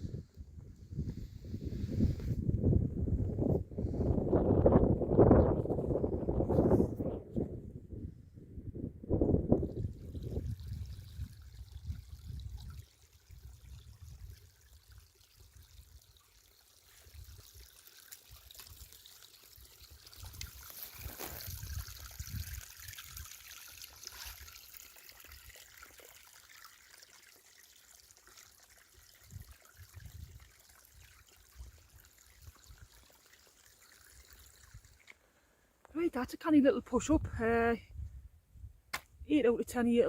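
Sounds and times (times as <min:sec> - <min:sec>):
wind rumbling on microphone: 0:00.0 - 0:14.6, 0:20.1 - 0:23.3, 0:29.2 - 0:30.5, 0:36.9 - 0:39.3
water trickling: 0:09.5 - 0:36.4.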